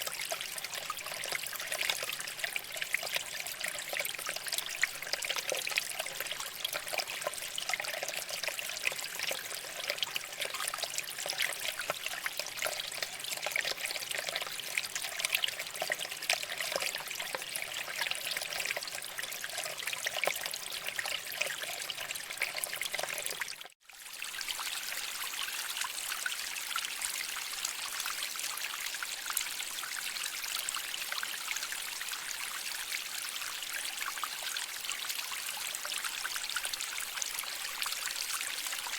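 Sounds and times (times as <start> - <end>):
water trickling over rocks: 0.0 - 38.9.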